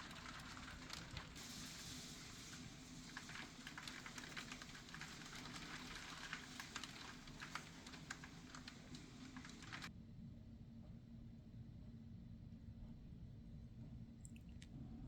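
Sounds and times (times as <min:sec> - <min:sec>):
hailstones striking hard surfaces: 0:00.0 - 0:09.9.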